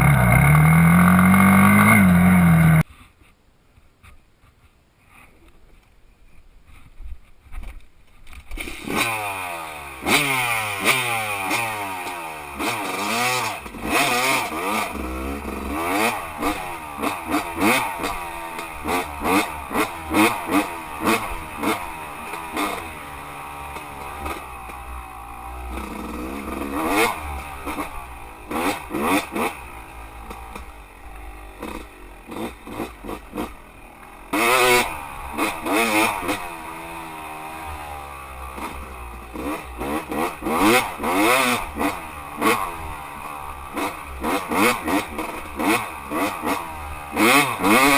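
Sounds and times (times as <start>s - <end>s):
dirt bike engine revving: 0.0s - 2.8s, 8.5s - 47.9s
clatter: 10.1s - 33.6s.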